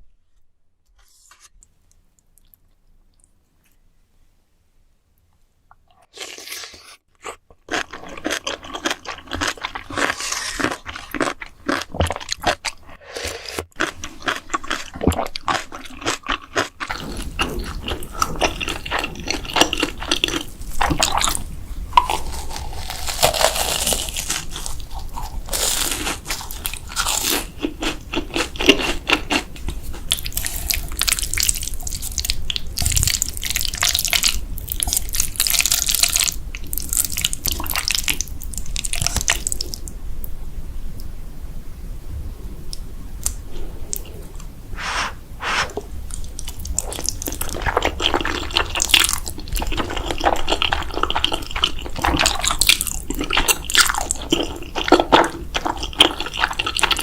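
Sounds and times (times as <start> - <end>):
crunchy bites and chewing: 6.1 - 36.3
low steady hum: 16.9 - 25.5.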